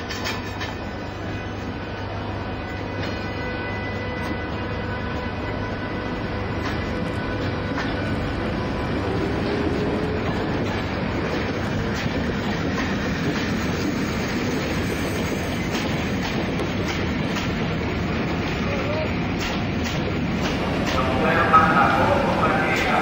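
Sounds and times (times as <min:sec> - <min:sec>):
model train rumbling on track: 0:05.1 - 0:23.0.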